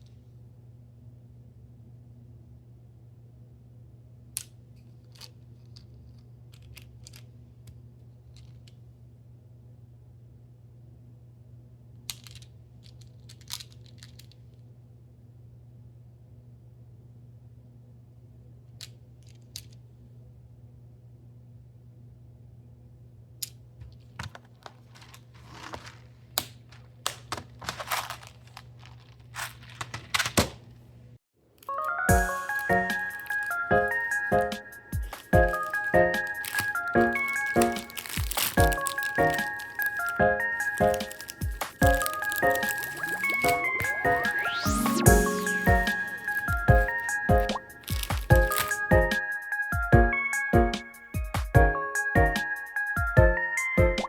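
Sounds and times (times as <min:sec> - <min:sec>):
small objects clicking: 0:12.1 - 0:14.4, 0:23.4 - 0:30.3, 0:31.6 - 0:49.0
packaging crinkling: 0:24.0 - 0:30.9, 0:31.6 - 0:49.2.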